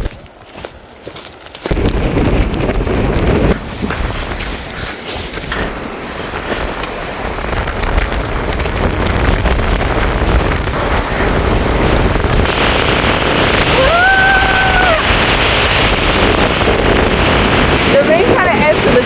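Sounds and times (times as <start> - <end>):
wind buffeting microphone: 0.0 - 19.0
rain pattering: 1.1 - 19.0.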